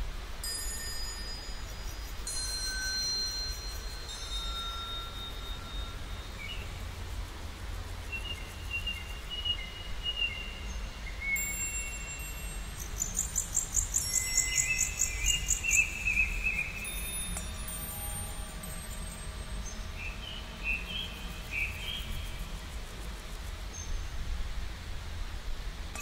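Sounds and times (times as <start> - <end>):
birds whistling: 12.8 - 22.3
high bird chirps: 12.9 - 22.2
low steady rumble: 14.8 - 26.0.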